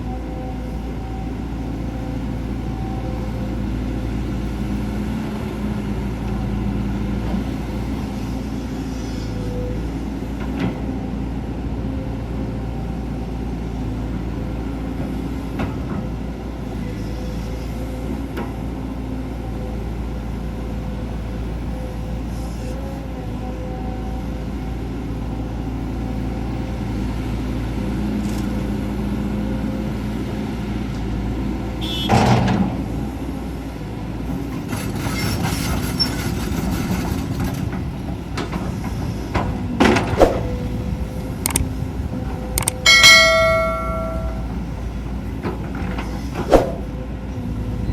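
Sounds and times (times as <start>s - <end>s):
excavator diesel engine running: 0.0s - 47.9s
sharp metallic clanks: 42.6s - 44.7s.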